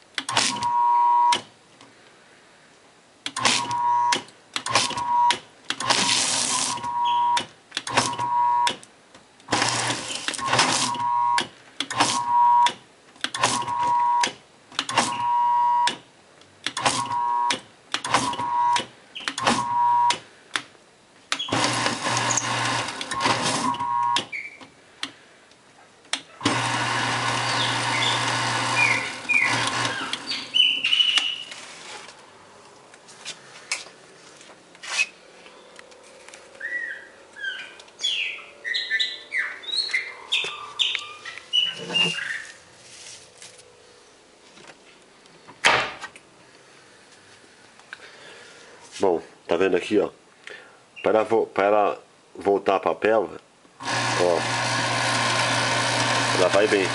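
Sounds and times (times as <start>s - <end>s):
paper shredder motor running: 21.6s - 23.4s, 26.5s - 30.3s, 53.8s - 56.9s.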